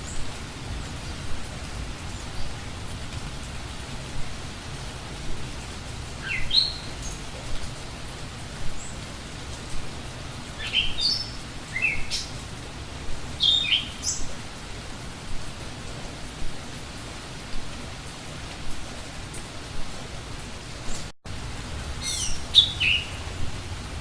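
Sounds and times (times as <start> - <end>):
rain hissing: 0.0 - 24.0
songbird calling: 6.2 - 7.2, 10.6 - 12.4, 13.4 - 14.4, 22.0 - 23.6.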